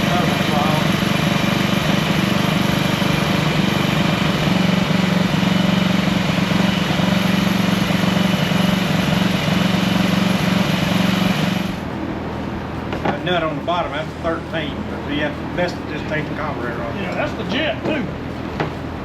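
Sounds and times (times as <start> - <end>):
small gas engine running: 0.0 - 11.9.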